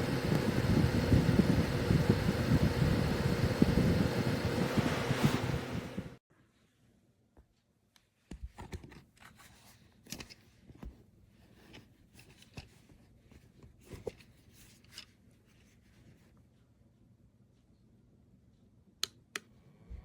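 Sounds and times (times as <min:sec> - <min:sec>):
plastic fan handling clicks and rustles: 0:08.3 - 0:11.0, 0:11.6 - 0:15.2.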